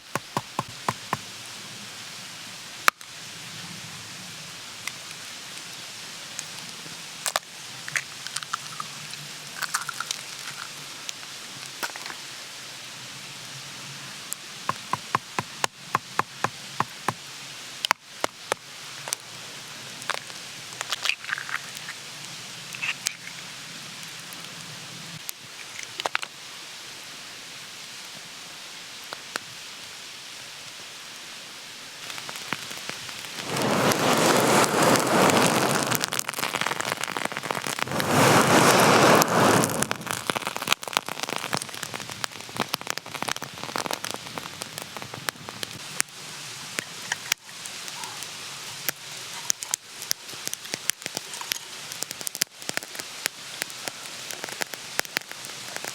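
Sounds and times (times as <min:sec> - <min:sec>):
campfire crackles and pops: 0:00.0 - 0:01.6, 0:04.8 - 0:12.3, 0:14.3 - 0:26.4, 0:32.0 - 0:55.9
food sizzling in a pan: 0:04.8 - 0:24.2, 0:32.0 - 0:55.9.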